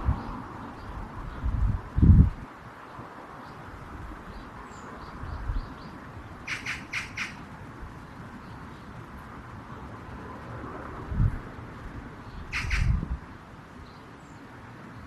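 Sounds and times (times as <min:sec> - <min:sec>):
harsh bird squawks: 0:06.4 - 0:07.4, 0:12.5 - 0:13.0.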